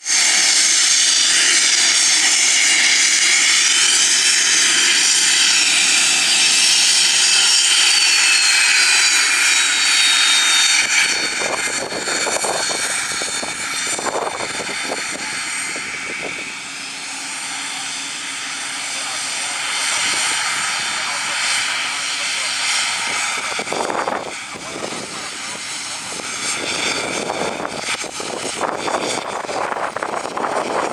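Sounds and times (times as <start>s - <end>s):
jet engine whine: 0.0s - 30.9s.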